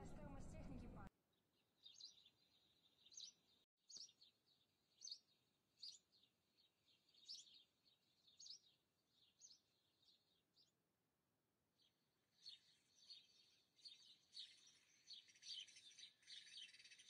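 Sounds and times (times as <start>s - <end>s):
faint bird chirps: 11.8s - 17.0s.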